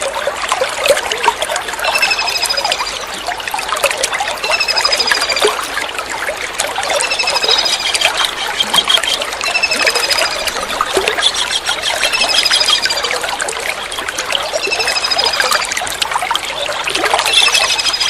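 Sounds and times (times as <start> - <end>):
running water trickling: 0.0 - 18.0
kingfisher high rapid trills: 1.9 - 3.8, 4.4 - 5.9, 6.9 - 13.5, 14.4 - 15.8, 17.2 - 18.0.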